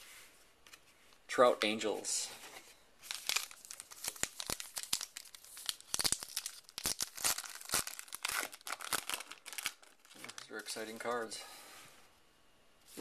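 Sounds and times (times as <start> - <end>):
foil wrapper crinkling: 3.0 - 11.2.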